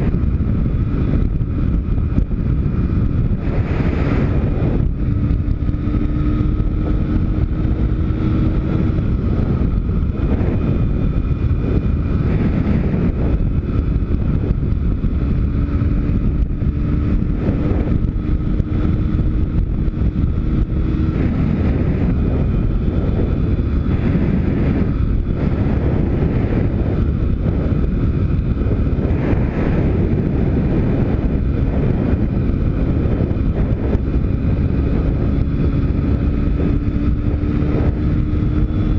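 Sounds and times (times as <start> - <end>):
motorbike engine revving: 0.0 - 38.9
wind noise on microphone: 0.0 - 38.9.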